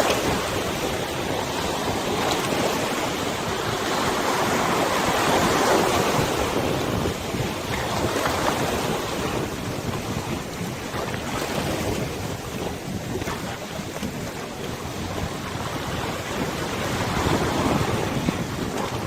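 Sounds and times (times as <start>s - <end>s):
river water washing: 0.0s - 19.0s
wind buffeting microphone: 0.0s - 19.0s.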